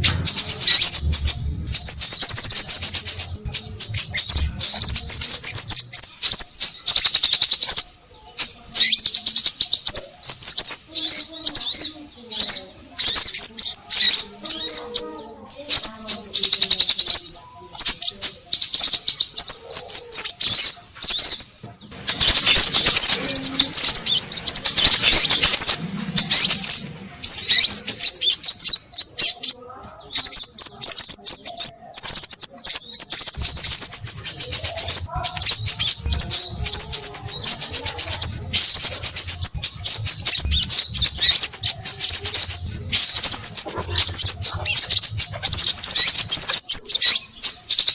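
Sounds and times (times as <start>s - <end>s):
faint low hum: 0.0s - 6.9s
birds chirping and twittering: 0.0s - 47.9s.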